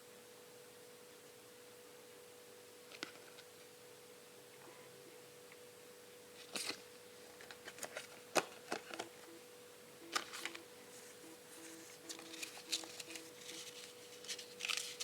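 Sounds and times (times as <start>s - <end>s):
faint steady hum: 0.0s - 15.0s
packaging rustle: 10.1s - 15.0s.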